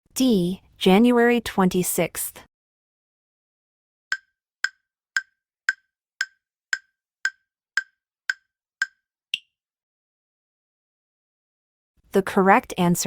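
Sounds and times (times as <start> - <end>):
countdown timer ticking: 4.1 - 9.5.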